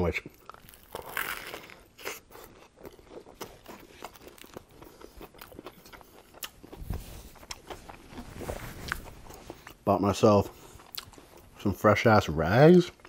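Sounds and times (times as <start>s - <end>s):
chewing sandwich close up: 0.0s - 11.8s
cloth rubbing: 6.8s - 9.6s.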